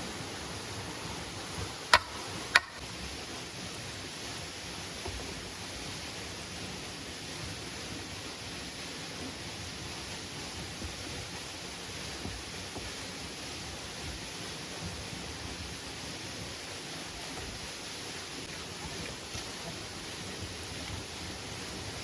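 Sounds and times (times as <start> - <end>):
rain hiss: 0.0 - 22.0
sharp knocks: 1.9 - 2.8.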